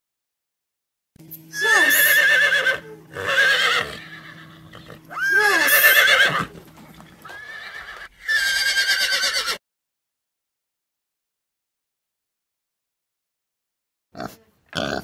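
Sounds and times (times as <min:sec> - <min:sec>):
horse whinnying: 0:01.5 - 0:09.6.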